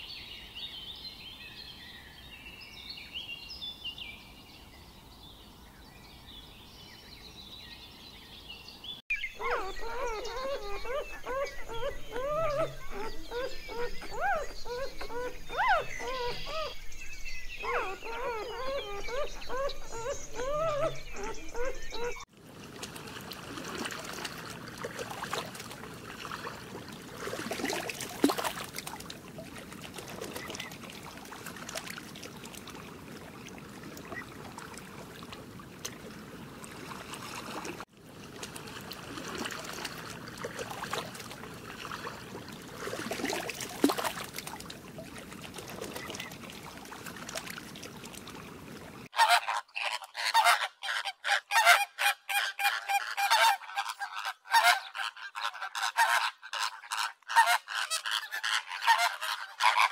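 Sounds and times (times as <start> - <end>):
faint trickling water: 22.3 - 49.1
flamingos honking: 49.1 - 59.9.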